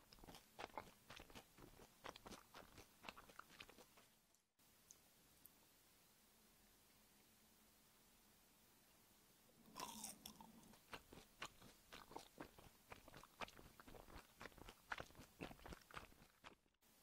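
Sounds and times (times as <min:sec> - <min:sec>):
crunchy chewing: 0:00.0 - 0:04.1, 0:09.7 - 0:16.8.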